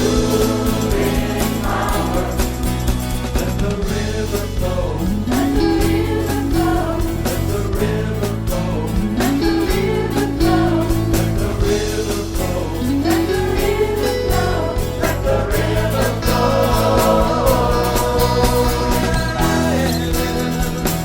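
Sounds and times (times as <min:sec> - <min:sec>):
band accompaniment: 0:00.0 - 0:21.0
choir singing gospel: 0:00.0 - 0:21.0.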